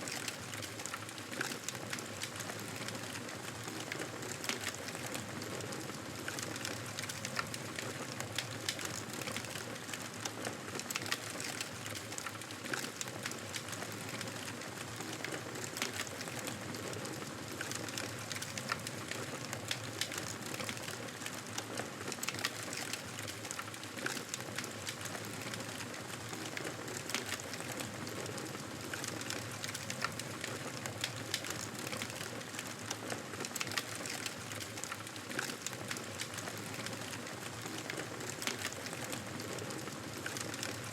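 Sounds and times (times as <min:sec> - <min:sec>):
campfire crackling: 0:11.0 - 0:40.9.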